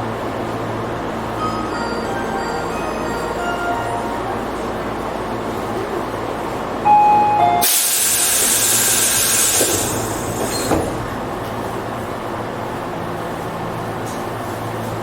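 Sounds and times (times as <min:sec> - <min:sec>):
train rumble: 0:00.0 - 0:15.0
loud hissing rush: 0:07.6 - 0:10.7.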